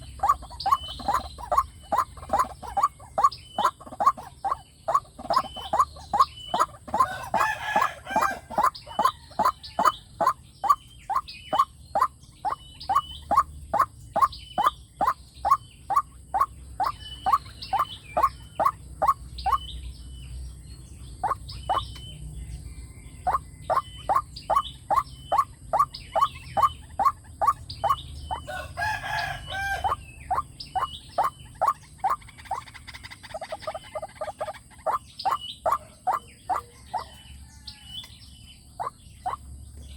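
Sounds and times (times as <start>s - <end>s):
rough bird call: 0.0s - 19.7s
waterhen repeated kook calls: 0.0s - 19.8s, 21.2s - 22.0s, 23.2s - 38.1s, 38.7s - 39.5s.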